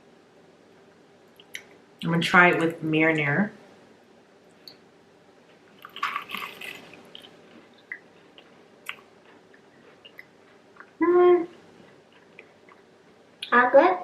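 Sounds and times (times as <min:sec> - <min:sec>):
quiet chewing: 0:05.4 - 0:13.5
crunchy bite into onion ring: 0:05.8 - 0:07.4.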